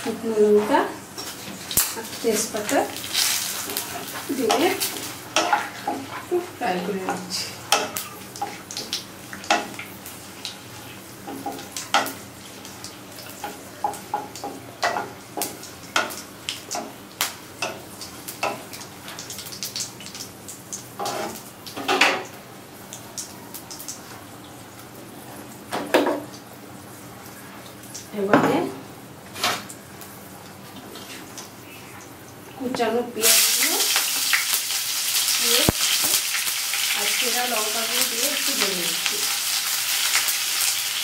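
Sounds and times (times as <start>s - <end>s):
spices sizzling in oil: 0.0s - 41.0s
wooden spatula scraping a pan: 0.5s - 7.4s, 21.0s - 21.4s.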